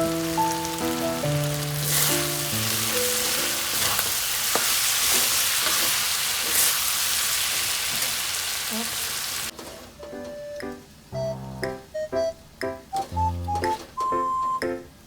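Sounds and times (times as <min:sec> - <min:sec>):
meat sizzling in a pan: 0:00.0 - 0:09.5.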